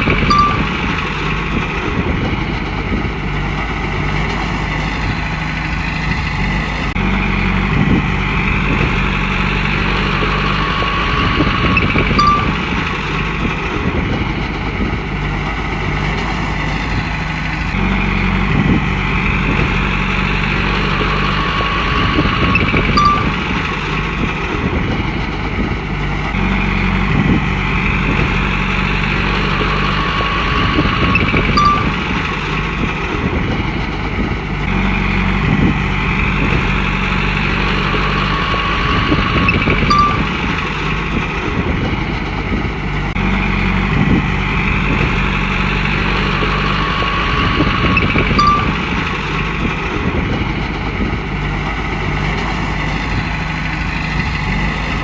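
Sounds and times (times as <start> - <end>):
bulldozer diesel engine under load: 0.0 - 55.0
brief high beep: 0.2 - 1.0, 11.8 - 12.8, 22.6 - 23.5, 31.2 - 32.1, 39.5 - 40.4, 48.0 - 48.9.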